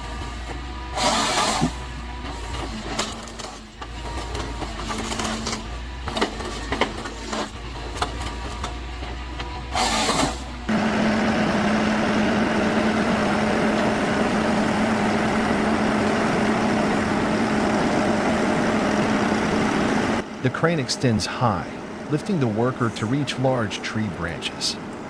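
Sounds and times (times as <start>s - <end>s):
engine droning steadily: 0.0s - 25.0s
machinery clattering and clicking: 0.2s - 10.7s.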